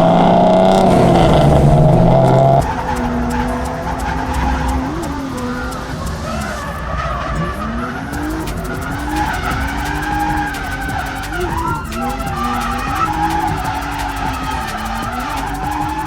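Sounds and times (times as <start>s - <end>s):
car engine revving: 0.0s - 16.0s
tyres skidding and squealing: 0.0s - 16.0s.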